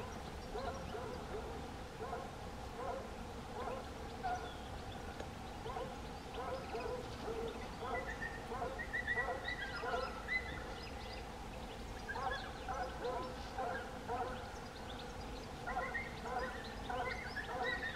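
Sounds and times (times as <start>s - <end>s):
faint high twittering: 3.6s - 17.9s
thin whistled bird notes: 5.6s - 17.9s.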